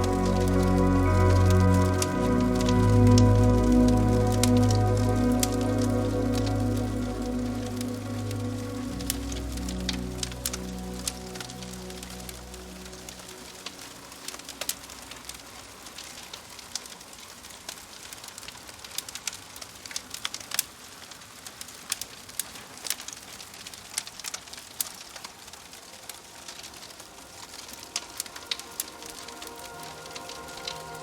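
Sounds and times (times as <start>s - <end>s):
soft sustained music tones: 0.0s - 17.1s, 25.1s - 31.0s
rain pattering: 0.0s - 31.0s
wood fire crackling: 0.0s - 31.0s.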